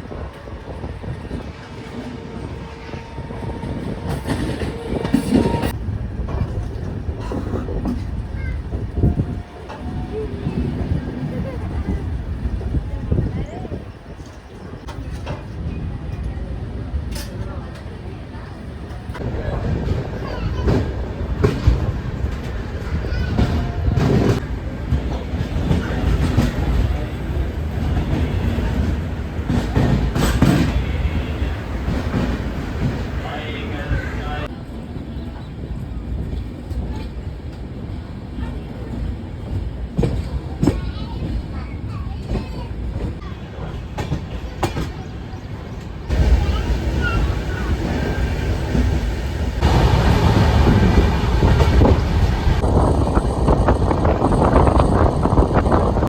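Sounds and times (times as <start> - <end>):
train rumbling: 0.0 - 56.0
wheels clacking over rail joints: 46.1 - 52.6.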